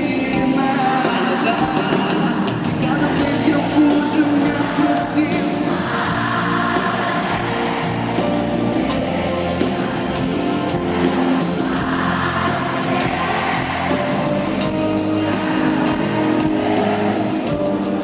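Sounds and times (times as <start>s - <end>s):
drums beat: 0.0s - 18.0s
live band playing pop ballad: 0.0s - 18.0s.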